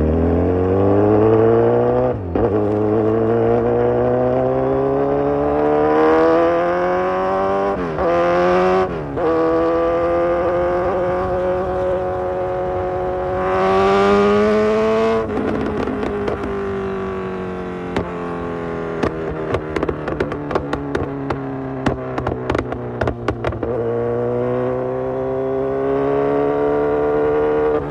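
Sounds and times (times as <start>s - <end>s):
motorcycle engine accelerating: 0.0s - 27.9s
exhaust pops and crackles: 15.3s - 16.6s, 18.9s - 23.8s.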